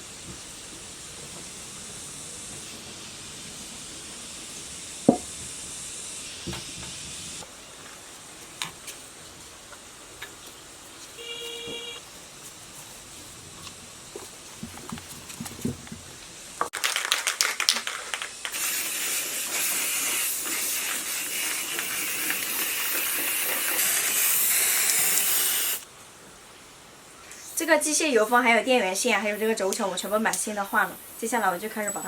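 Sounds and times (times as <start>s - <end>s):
spray hiss: 0.0s - 14.5s, 17.9s - 25.9s, 27.2s - 32.0s
spray can rattling: 16.6s - 25.8s.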